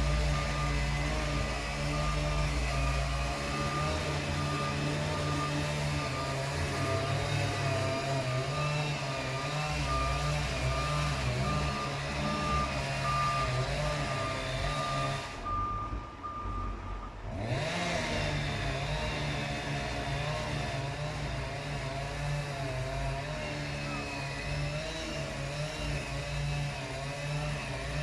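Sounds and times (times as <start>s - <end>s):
reversing beeper beeping: 0.0s - 17.2s, 23.6s - 25.2s
diesel truck engine running: 0.0s - 28.0s.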